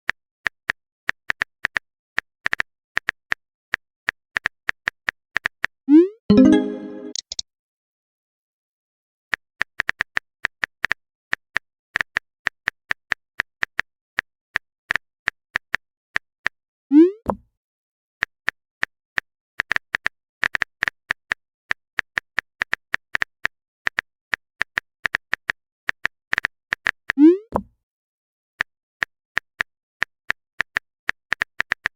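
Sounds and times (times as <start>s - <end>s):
rising message-sent bloop: 6.3s - 7.2s
phone keyboard typing clicks: 6.4s - 7.4s.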